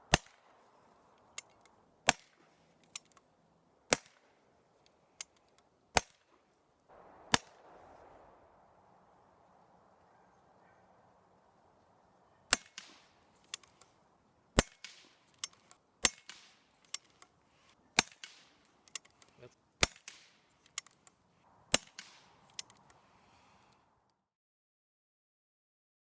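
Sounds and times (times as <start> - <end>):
faint cracks and clicks: 0.1 - 3.3, 12.5 - 14.0, 14.6 - 23.0
suppressed rifle shots: 6.9 - 9.2, 12.5 - 13.8, 14.6 - 17.1, 21.7 - 22.6.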